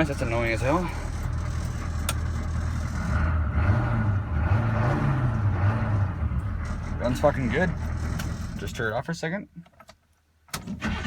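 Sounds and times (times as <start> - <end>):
diesel engine running: 0.0 - 8.8.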